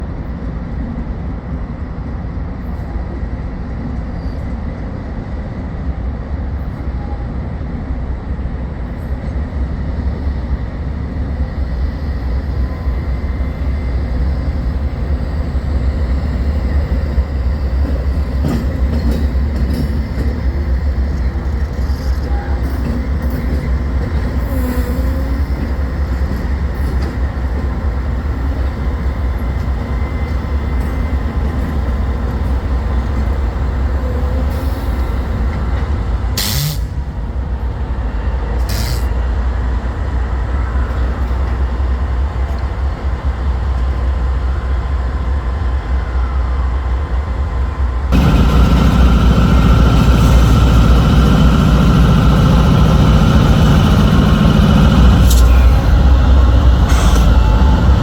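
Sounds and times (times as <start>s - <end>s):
diesel locomotive rumbling: 0.0s - 58.0s
steady whine: 48.1s - 58.0s.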